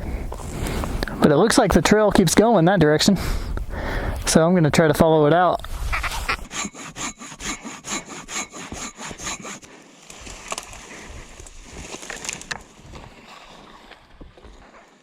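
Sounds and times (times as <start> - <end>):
rustling: 5.5 - 15.0
handsaw cutting wood: 5.7 - 12.2.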